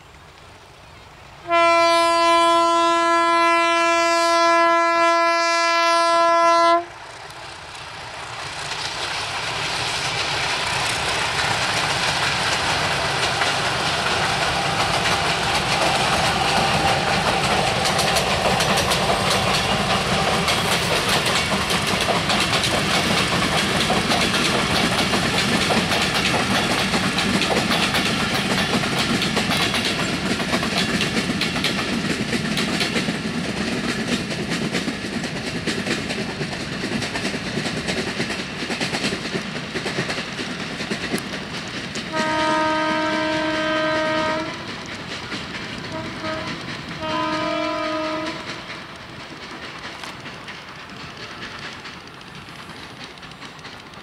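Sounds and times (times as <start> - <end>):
train horn: 1.4 - 7.0, 42.1 - 44.8, 45.8 - 48.9
train wheels clattering: 6.3 - 54.0.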